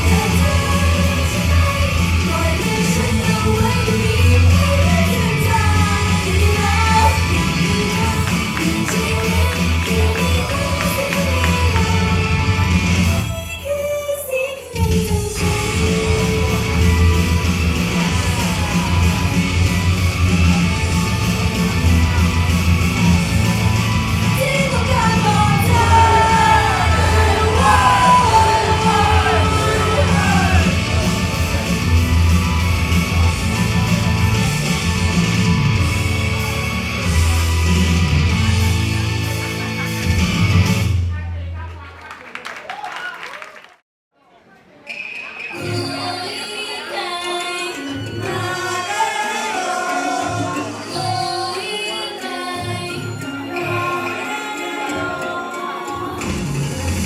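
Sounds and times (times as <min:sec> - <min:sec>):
pop song over sound system: 0:00.0 - 0:41.0, 0:45.5 - 0:57.0
high singing voice: 0:24.3 - 0:31.3, 0:45.5 - 0:56.6.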